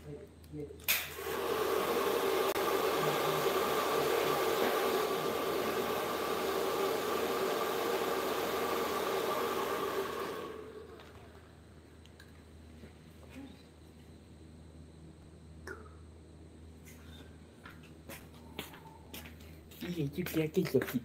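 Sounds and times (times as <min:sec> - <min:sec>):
power tool motor humming: 0:01.2 - 0:11.2.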